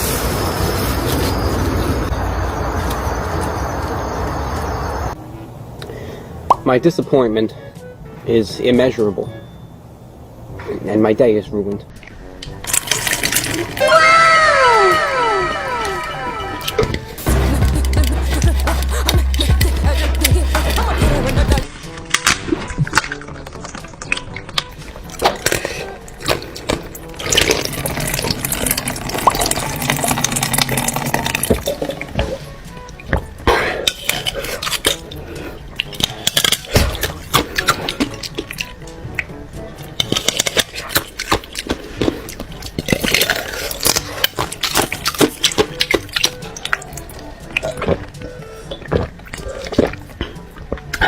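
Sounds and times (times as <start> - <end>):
crunching and chewing: 12.4 - 13.8, 16.6 - 51.0
liquid pouring: 12.6 - 13.8, 27.0 - 32.5
sharp mouth clicks and smacks: 17.6 - 21.4, 33.8 - 51.0.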